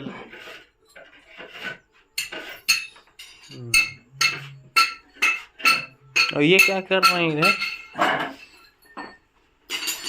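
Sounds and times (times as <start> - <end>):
metal clinking on metal: 2.2 - 10.0.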